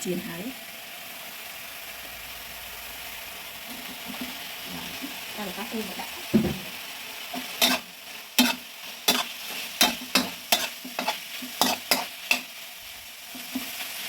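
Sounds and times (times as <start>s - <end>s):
tofu sizzling in pan: 0.0s - 14.0s
utensil clacking against pan: 8.4s - 12.5s.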